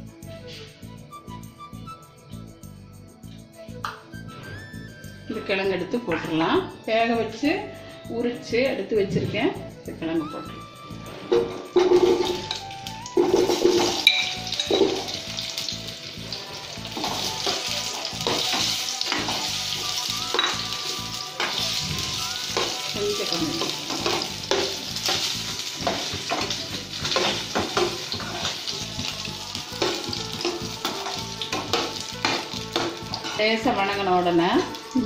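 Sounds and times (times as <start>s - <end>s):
potatoes sizzling in oil: 11.7s - 35.0s.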